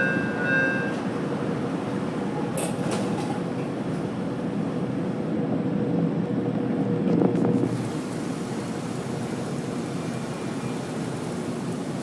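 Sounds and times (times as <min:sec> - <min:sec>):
subway train rumbling in tunnel: 0:00.0 - 0:12.0.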